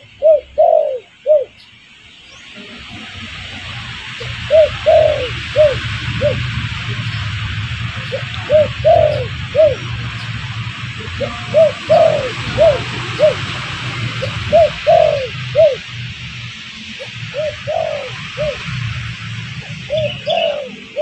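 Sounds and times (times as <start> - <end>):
dove cooing: 0.0 - 1.6, 4.1 - 7.2, 8.0 - 10.4, 11.0 - 16.0, 17.0 - 18.9, 19.5 - 21.0
low hum and hiss: 0.0 - 21.0.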